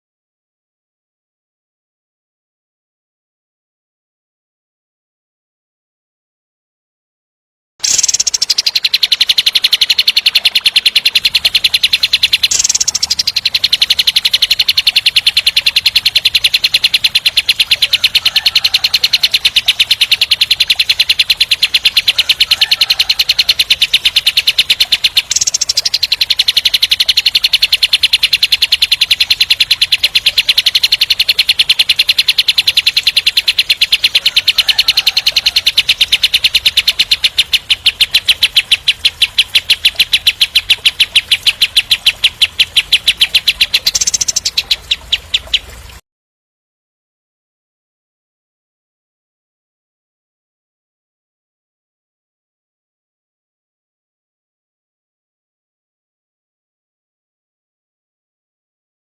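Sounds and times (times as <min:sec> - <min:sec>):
faint bird chirps: 0:07.8 - 0:46.0
songbird fast trilling song: 0:07.8 - 0:46.0.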